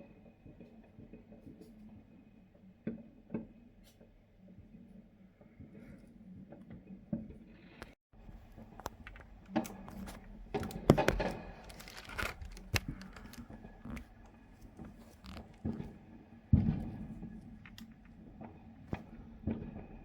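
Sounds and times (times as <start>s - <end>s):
fireworks cracks and pops: 8.4s - 16.0s.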